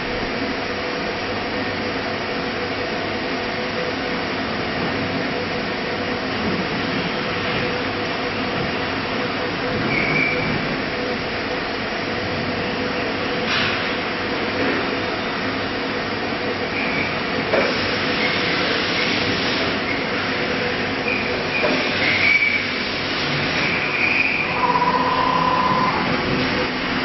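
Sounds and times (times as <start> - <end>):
cnc router running: 19.7 - 27.0.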